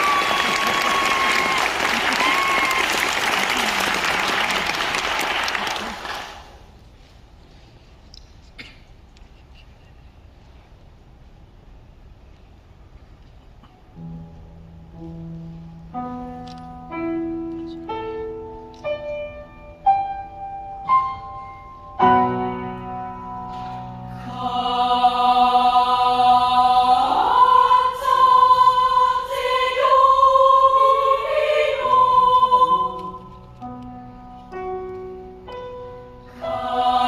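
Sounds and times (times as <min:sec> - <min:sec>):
children's choir singing: 0:00.0 - 0:02.2, 0:24.0 - 0:33.4, 0:36.3 - 0:37.0
piano notes: 0:14.0 - 0:25.2, 0:30.7 - 0:37.0.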